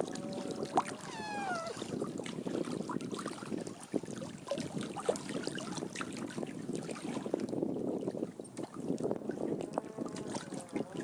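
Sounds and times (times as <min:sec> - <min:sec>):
water trickling and lapping: 0:00.0 - 0:11.0
small ticks and splashes: 0:08.5 - 0:11.0.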